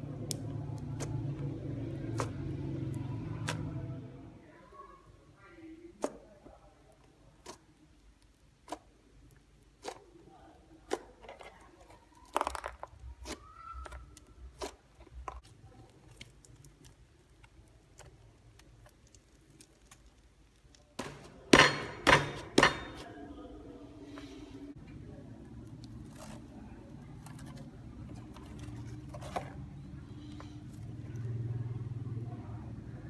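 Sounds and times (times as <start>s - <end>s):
slime clicking and popping: 0.2s - 1.3s.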